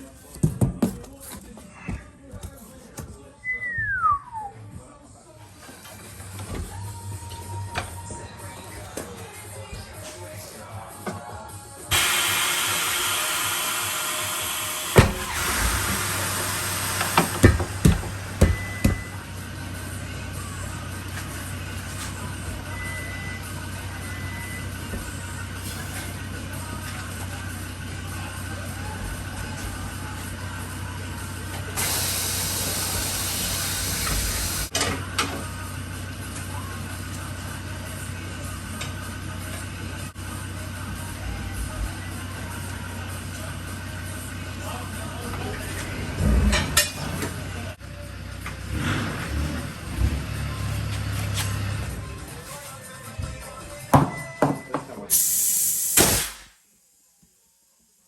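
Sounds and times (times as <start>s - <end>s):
loud hiss: 11.9s - 17.6s, 31.8s - 34.7s, 55.1s - 56.6s
sharp knocks: 17.2s - 19.1s
heavy knock: 17.2s - 19.2s
loud steady hiss: 31.8s - 34.7s, 55.1s - 56.6s.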